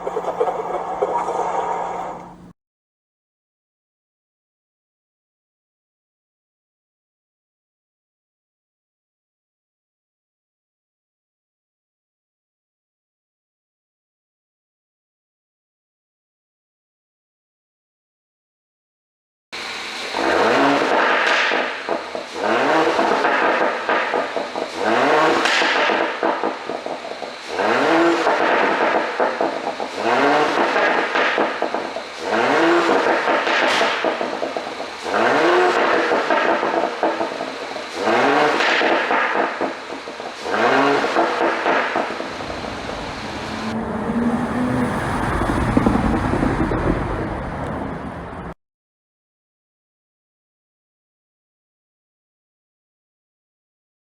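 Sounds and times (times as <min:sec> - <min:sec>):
car engine revving: 0:19.6 - 0:48.5
exhaust pops and crackles: 0:20.2 - 0:48.2
road and wind noise: 0:22.5 - 0:48.6.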